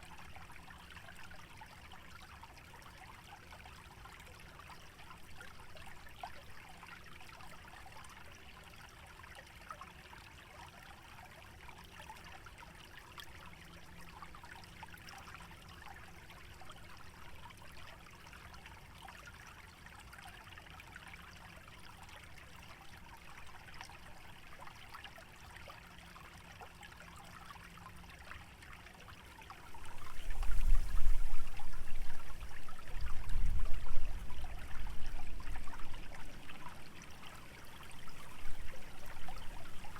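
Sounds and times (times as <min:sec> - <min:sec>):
small stream trickling: 0:00.0 - 0:39.9
wind buffeting the microphone: 0:29.7 - 0:36.3, 0:37.9 - 0:39.9.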